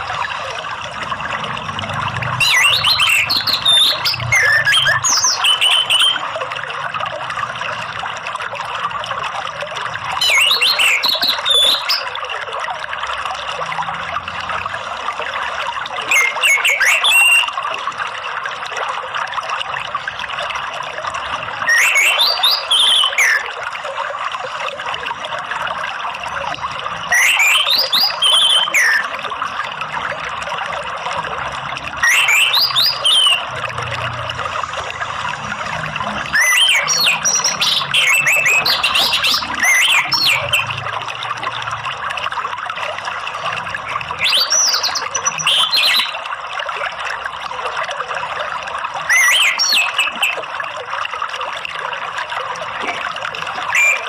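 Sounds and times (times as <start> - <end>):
running water: 0.0 - 54.0
thrush singing whistled phrases: 2.4 - 6.4, 10.2 - 12.2, 16.0 - 17.6, 21.6 - 23.5, 27.1 - 29.2, 32.0 - 33.6, 36.2 - 40.8, 43.8 - 46.2, 49.0 - 50.4, 53.7 - 54.0.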